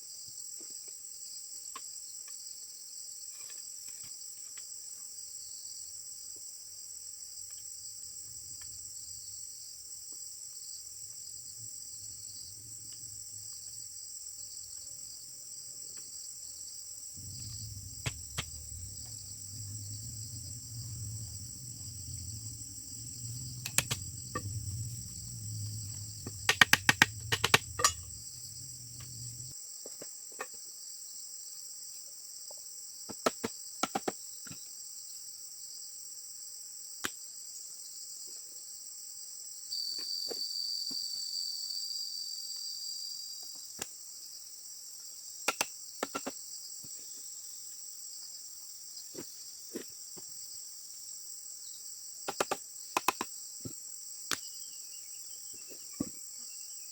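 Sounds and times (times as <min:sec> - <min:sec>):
higher insect tone: 0:06.9 - 0:29.6
low hum: 0:10.8 - 0:14.8, 0:17.1 - 0:29.6
high-pitched insect chirring: 0:17.2 - 0:29.5
sharp knocks or clicks: 0:17.2 - 0:29.5.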